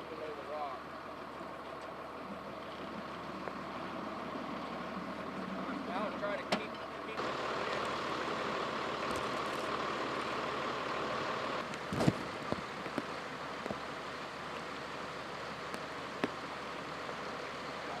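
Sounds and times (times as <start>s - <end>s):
water rushing: 7.1s - 18.0s.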